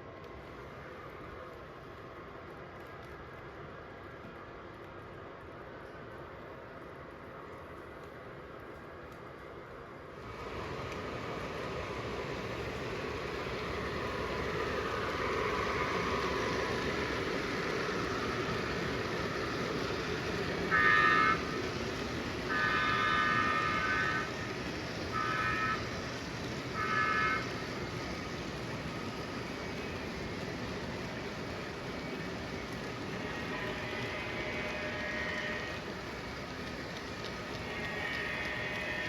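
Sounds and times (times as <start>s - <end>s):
train rumbling on track: 0.0s - 39.0s
model train horn: 20.6s - 21.8s, 22.5s - 24.3s, 25.1s - 25.9s, 26.8s - 27.6s, 33.2s - 36.0s, 37.5s - 39.0s.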